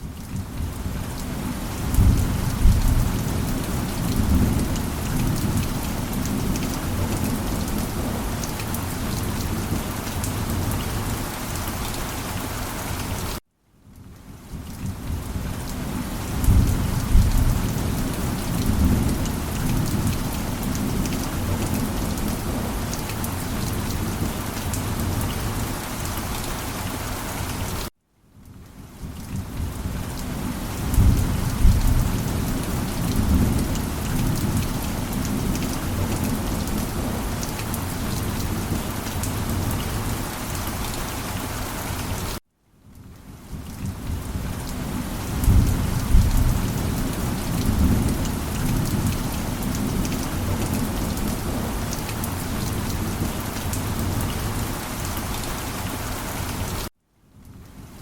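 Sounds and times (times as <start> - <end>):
steady rain: 0.0 - 58.0
low rolling thunder: 0.5 - 8.2, 16.2 - 23.4, 29.3 - 40.2, 45.2 - 54.7.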